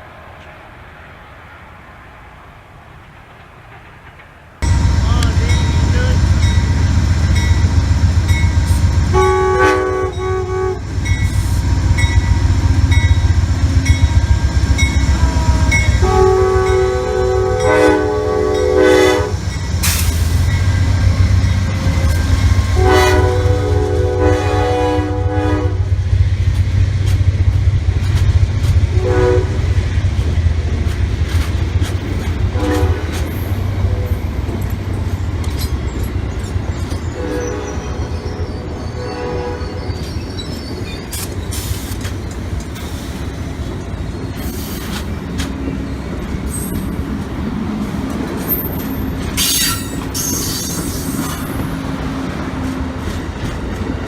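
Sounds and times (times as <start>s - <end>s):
passing train rumble: 0.0s - 54.0s
locomotive air horn: 9.0s - 12.6s, 14.2s - 20.0s, 21.8s - 25.9s, 28.9s - 29.7s, 32.5s - 34.2s, 37.2s - 39.9s.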